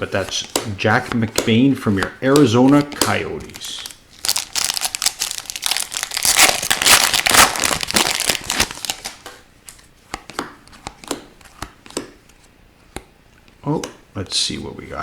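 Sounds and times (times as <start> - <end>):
foil wrapper tearing and crinkling: 3.6 - 9.2.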